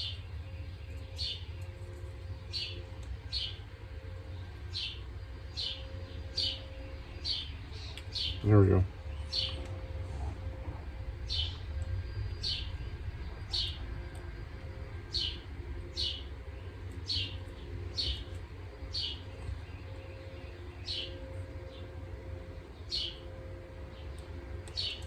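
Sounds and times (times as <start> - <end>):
low steady rumble: 0.0 - 25.0
bird chirping: 4.3 - 9.7, 11.2 - 14.2, 15.0 - 25.0.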